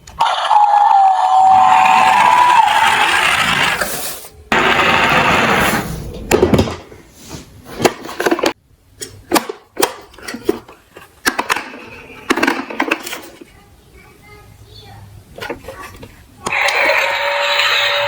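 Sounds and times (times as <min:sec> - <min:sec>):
toy trucks rolling: 0:00.0 - 0:05.9, 0:10.0 - 0:13.6, 0:15.4 - 0:18.0.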